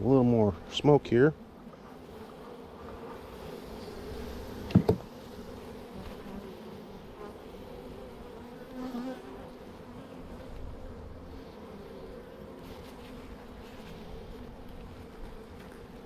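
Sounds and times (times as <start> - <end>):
bees buzzing: 0.0 - 16.0
sharp knocks: 4.7 - 5.1.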